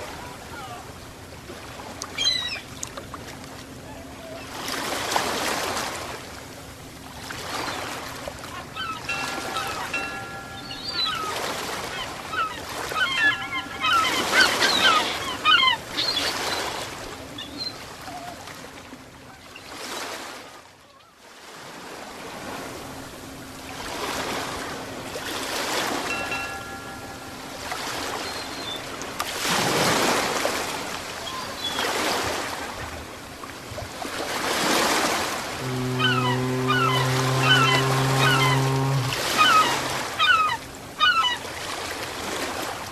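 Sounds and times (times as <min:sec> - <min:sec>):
ocean waves washing in: 0:21.3 - 0:42.9.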